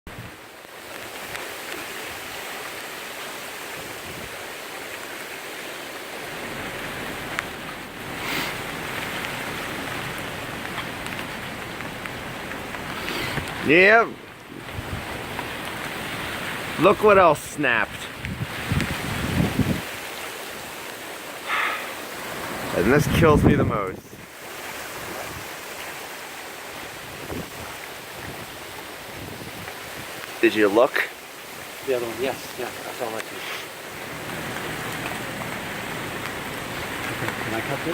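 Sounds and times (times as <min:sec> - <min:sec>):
wind and rain rushing: 0:00.1 - 0:37.9
wind rushing: 0:16.8 - 0:20.0, 0:22.4 - 0:24.3.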